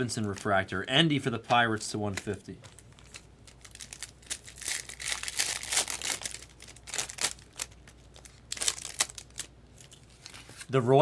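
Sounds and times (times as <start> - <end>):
plastic wrapper crinkling and tearing: 2.1 - 10.7.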